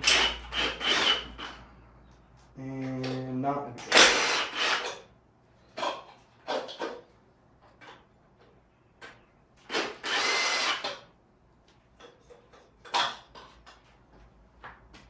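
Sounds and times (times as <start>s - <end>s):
power tool running: 0.0s - 1.6s, 3.9s - 4.9s, 9.7s - 11.0s.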